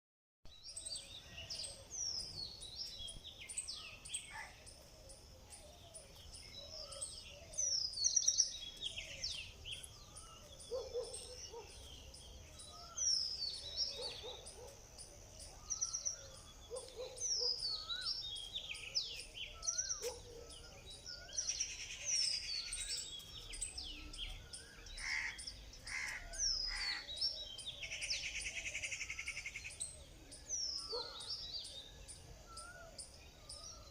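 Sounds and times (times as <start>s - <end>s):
birds chirping and singing: 0.5s - 33.9s.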